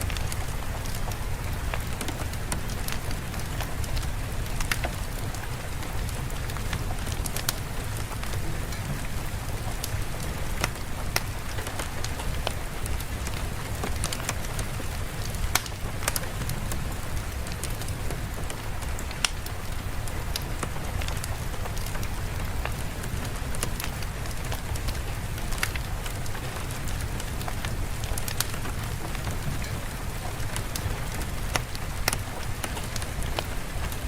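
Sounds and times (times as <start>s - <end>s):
steady rain: 0.0s - 34.0s
sharp crackling clicks: 15.5s - 16.2s, 19.0s - 19.5s.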